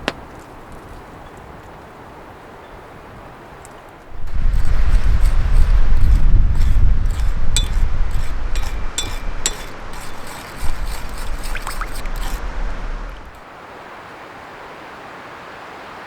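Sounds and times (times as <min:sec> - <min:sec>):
wind buffeting microphone: 0:04.1 - 0:13.4
light ringing clinks: 0:07.6 - 0:13.4.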